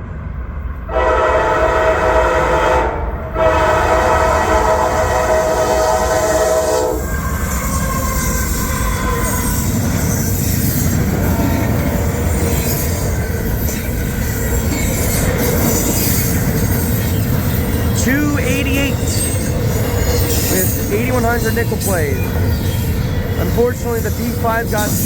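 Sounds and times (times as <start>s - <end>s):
freight train rumbling past: 0.0s - 25.0s
locomotive air horn chord: 0.9s - 7.0s.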